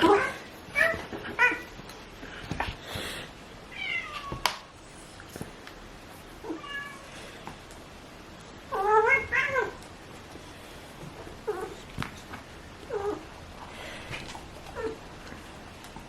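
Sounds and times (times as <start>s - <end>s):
cat meowing: 3.7s - 4.4s, 6.4s - 7.1s, 8.7s - 9.8s.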